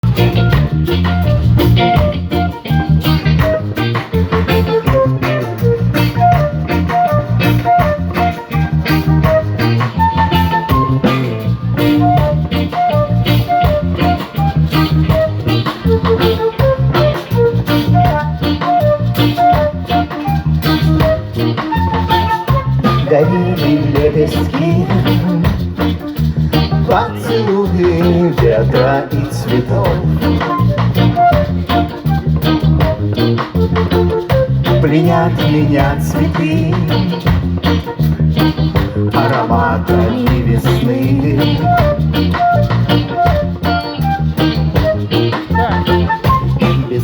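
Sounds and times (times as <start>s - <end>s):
bass: 0.0s - 47.0s
drum kit beat: 0.0s - 47.0s
electric guitar melody: 0.0s - 47.0s.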